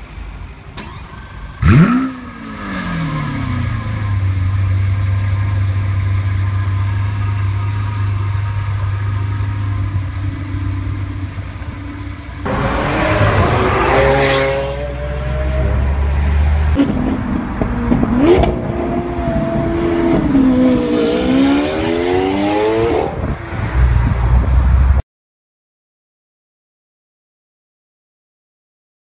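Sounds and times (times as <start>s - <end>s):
sports car engine revving: 1.6s - 23.4s.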